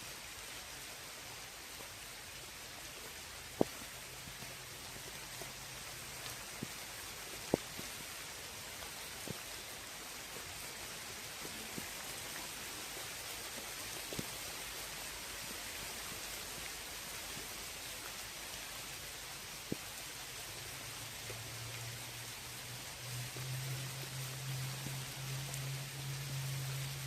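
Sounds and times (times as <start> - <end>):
rain falling on lake: 0.0 - 27.0
sharp rain drop ticks: 3.5 - 4.7, 5.3 - 8.0.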